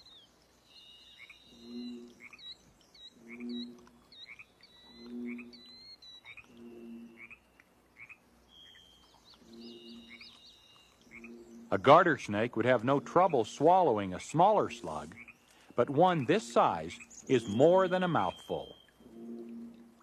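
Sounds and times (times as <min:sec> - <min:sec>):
small birds chirping: 0:00.0 - 0:19.1
low two-note bird call: 0:16.5 - 0:19.8.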